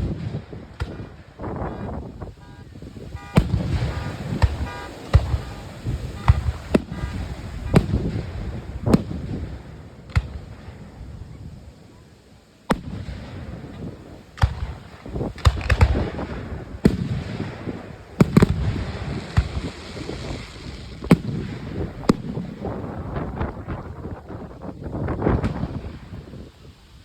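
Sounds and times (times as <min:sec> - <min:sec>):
rumbling echo: 0:00.0 - 0:11.4
fireworks booming: 0:00.0 - 0:26.8.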